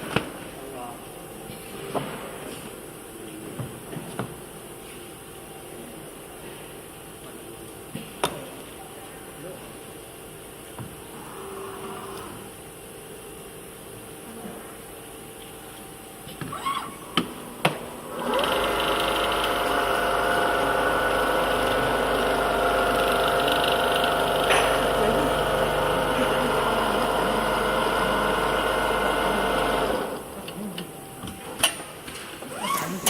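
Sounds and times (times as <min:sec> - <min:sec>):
sewing machine running: 0:18.1 - 0:30.2.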